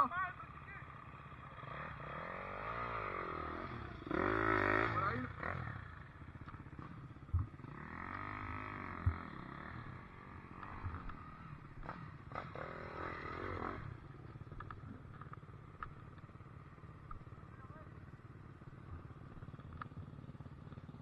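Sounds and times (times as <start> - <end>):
dirt bike engine revving: 0.0 - 15.8.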